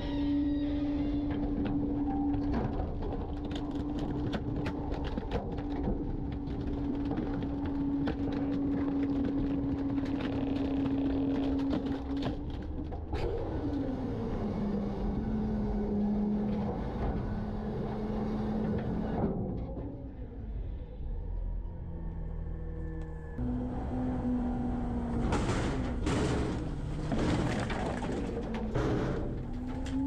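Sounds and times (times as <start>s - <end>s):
garbage truck mechanical hum: 0.0s - 30.0s
trash cracking and clattering: 25.1s - 30.0s.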